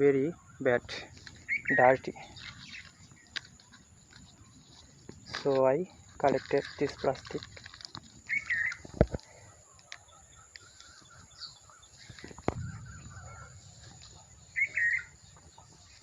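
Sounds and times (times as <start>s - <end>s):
bird warbling chirp: 0.0s - 5.2s, 8.2s - 8.9s, 9.6s - 16.0s
faint outdoor background: 0.0s - 16.0s.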